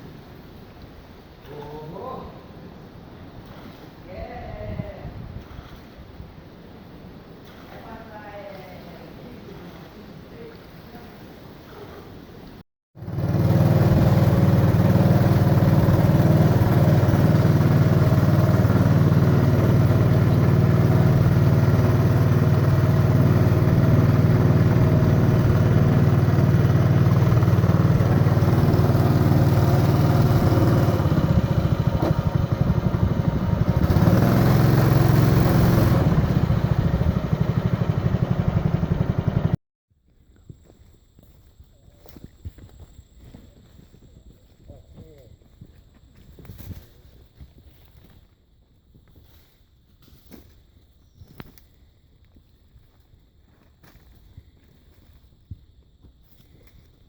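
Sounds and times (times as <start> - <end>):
motor engine droning: 13.0 - 39.6.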